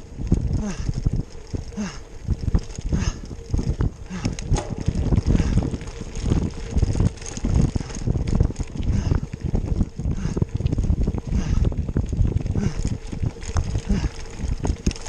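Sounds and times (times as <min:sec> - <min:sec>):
bike tyres rumbling on dirt: 0:00.0 - 0:15.0
wind buffeting microphone: 0:00.0 - 0:15.0
bike knocks and rattles: 0:00.3 - 0:15.0.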